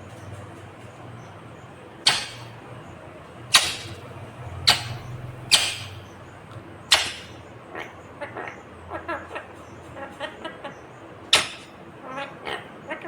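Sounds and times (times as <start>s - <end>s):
parakeet screeching: 4.6s - 6.1s, 6.9s - 9.4s.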